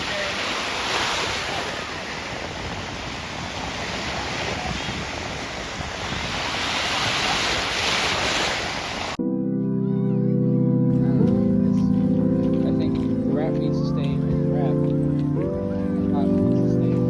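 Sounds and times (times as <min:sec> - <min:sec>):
ocean waves washing ashore: 0:00.0 - 0:09.2
wind buffeting microphone: 0:00.0 - 0:09.2
organ-like music chords: 0:09.2 - 0:17.0.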